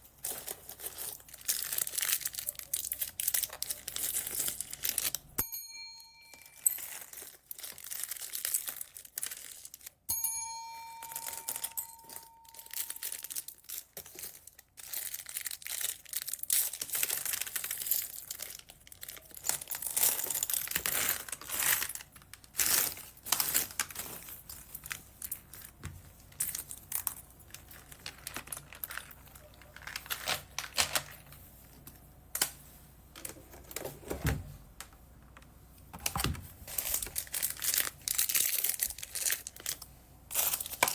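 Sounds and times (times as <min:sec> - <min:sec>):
plastic bags crinkling: 0:00.0 - 0:05.4, 0:06.2 - 0:10.1, 0:10.8 - 0:34.0, 0:35.9 - 0:40.9
bell-like ding: 0:05.4 - 0:06.8, 0:10.1 - 0:13.3.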